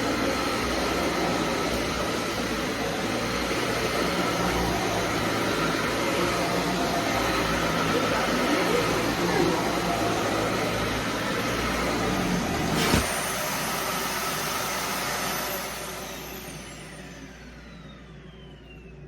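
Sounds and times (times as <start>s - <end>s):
vacuum cleaner running: 0.0s - 19.0s
motor winding down whine: 12.1s - 19.0s.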